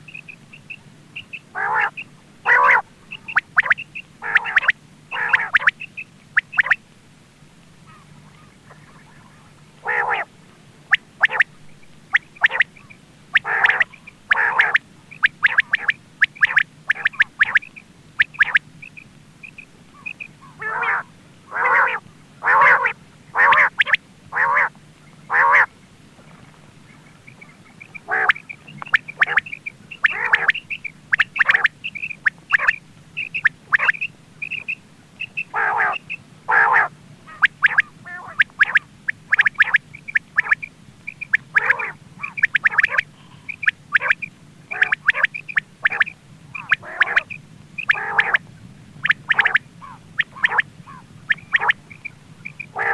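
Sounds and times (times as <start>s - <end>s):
quail harsh nasal calls: 0.1s - 6.8s, 7.8s - 10.3s, 10.9s - 24.7s, 25.3s - 25.7s, 27.3s - 48.4s, 49.0s - 52.9s.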